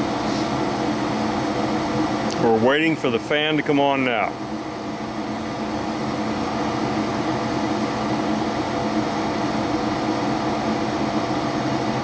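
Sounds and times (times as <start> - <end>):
furnace motor humming: 0.0 - 12.0.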